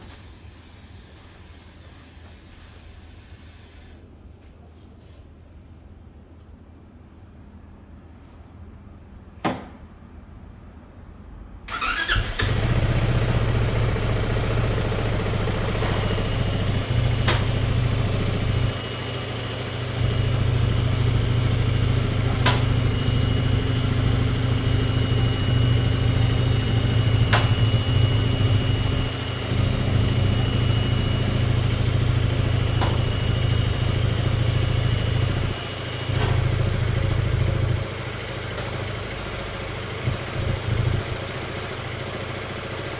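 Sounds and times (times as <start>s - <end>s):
click: 6.4s - 6.6s
scooter engine starting and idling: 11.7s - 42.9s.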